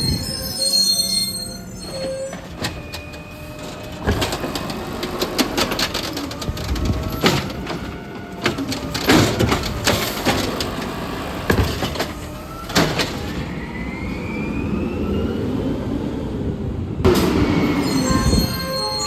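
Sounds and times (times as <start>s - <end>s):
garbage truck engine running: 1.5s - 13.7s
metal clanks and bangs: 2.0s - 13.3s.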